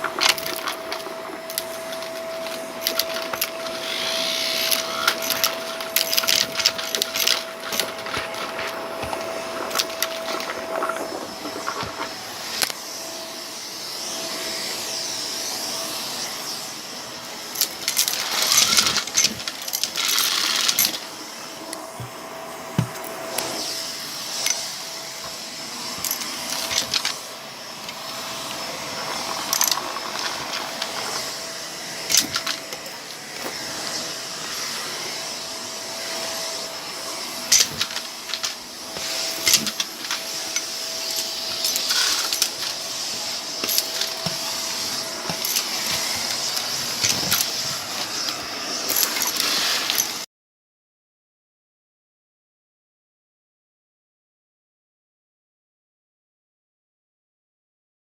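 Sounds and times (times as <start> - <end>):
debris rattling up hose: 0.0 - 12.8, 24.2 - 34.2, 37.1 - 50.2
vacuum cleaner running: 0.0 - 50.3.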